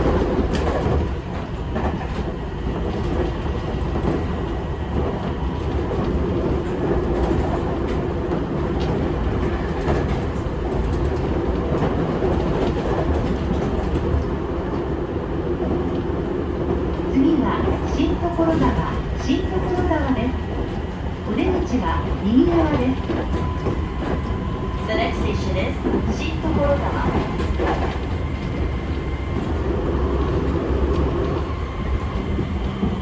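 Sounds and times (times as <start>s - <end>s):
rail-joint clicks: 0.0s - 15.0s, 15.6s - 33.0s
train wheels rumbling: 0.0s - 33.0s.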